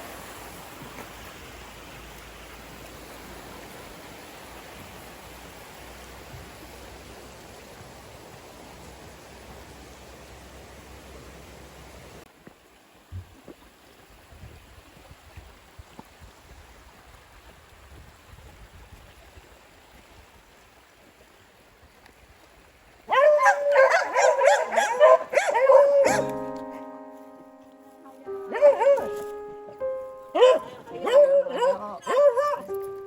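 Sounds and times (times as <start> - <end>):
dog barking and whining: 23.1 - 26.3, 28.5 - 29.2, 30.3 - 32.7.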